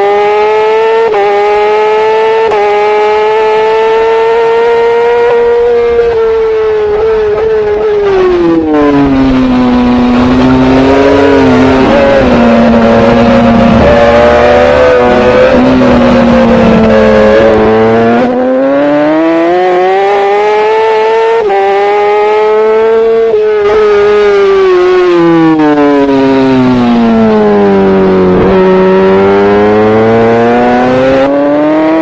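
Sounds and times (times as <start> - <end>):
racing motorbike engine revving: 0.0 - 32.0.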